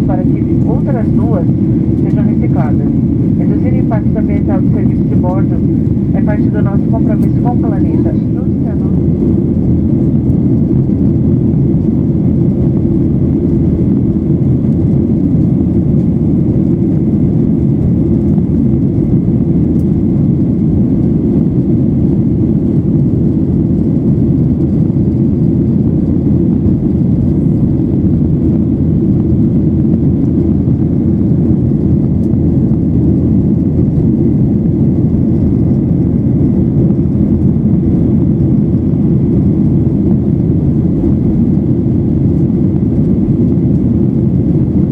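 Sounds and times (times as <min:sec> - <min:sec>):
airplane cabin rush: 0:00.0 - 0:11.2.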